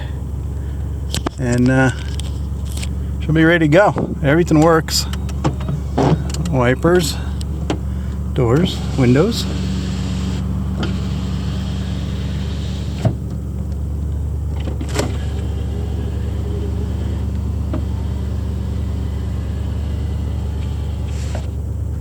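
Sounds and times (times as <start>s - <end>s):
car engine idling: 0.0s - 22.0s
sharp clicks: 4.6s - 6.6s.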